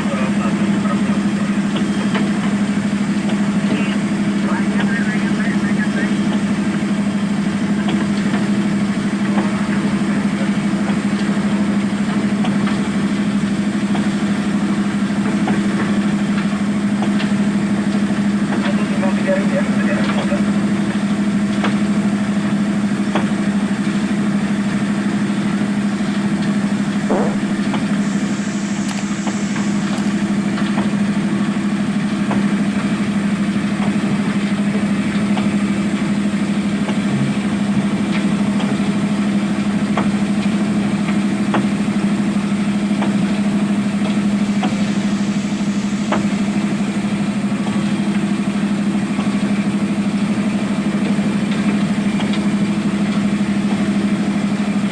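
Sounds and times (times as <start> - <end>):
excavator diesel engine humming: 0.0 - 54.9
faint knocks: 27.0 - 27.8.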